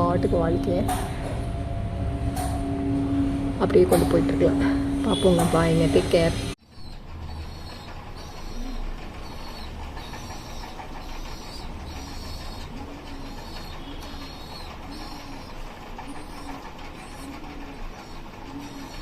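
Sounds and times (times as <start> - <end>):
high repeated bird call: 6.7 - 19.0
pigeons cooing: 6.8 - 19.0.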